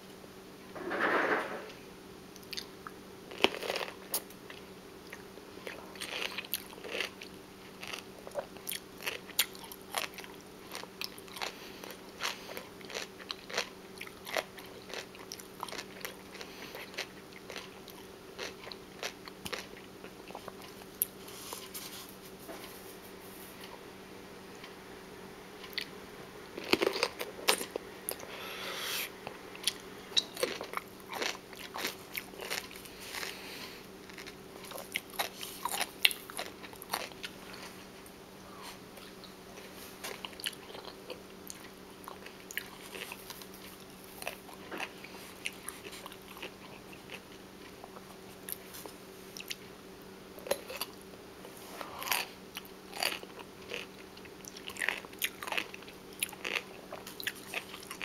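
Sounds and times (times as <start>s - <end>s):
faint steady hum: 0.0s - 58.0s
person chewing crunchy food: 2.4s - 22.8s, 25.6s - 26.0s, 26.6s - 49.6s, 50.4s - 58.0s.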